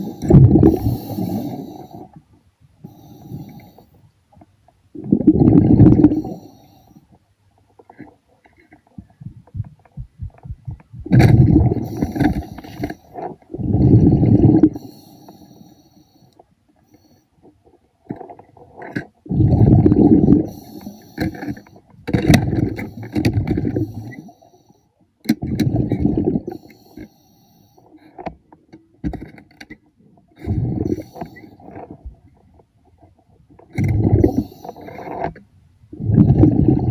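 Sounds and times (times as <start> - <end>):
exhaled bubbles underwater: 0.0 - 2.1, 5.0 - 6.5, 10.7 - 12.6, 13.5 - 14.9, 19.2 - 21.0, 25.4 - 26.6, 30.4 - 31.2, 33.7 - 35.0, 35.9 - 36.9
diver breathing through regulator: 0.0 - 2.2, 2.8 - 3.9, 11.3 - 17.2, 19.3 - 21.8, 30.4 - 31.6, 33.8 - 35.2, 36.0 - 36.9.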